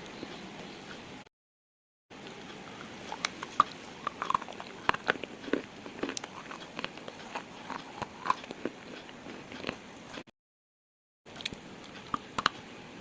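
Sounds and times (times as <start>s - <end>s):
slate crunching and snapping: 3.1s - 10.2s.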